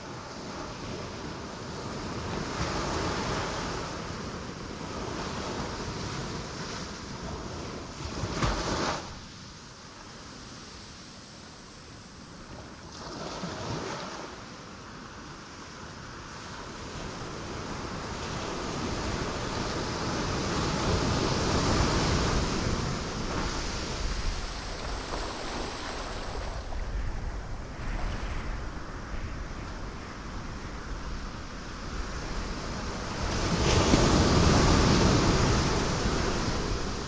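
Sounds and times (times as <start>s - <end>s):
sea waves breaking on rocks: 18.4s - 37.0s.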